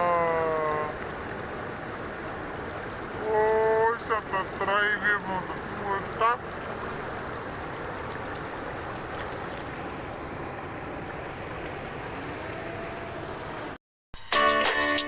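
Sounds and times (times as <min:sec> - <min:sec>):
falling water rushing: 0:00.0 - 0:13.8
acoustic guitar music: 0:14.2 - 0:15.0.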